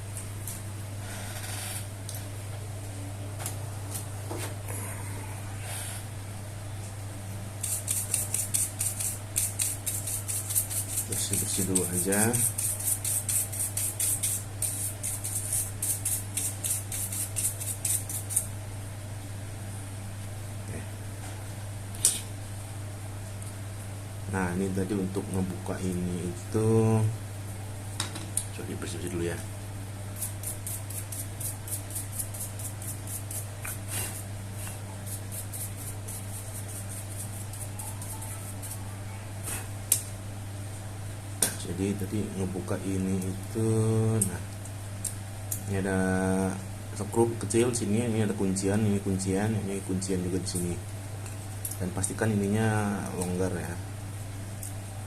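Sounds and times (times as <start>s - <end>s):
steady low hum: 0.0s - 55.0s
scratchy scrubbing strokes: 30.2s - 38.8s.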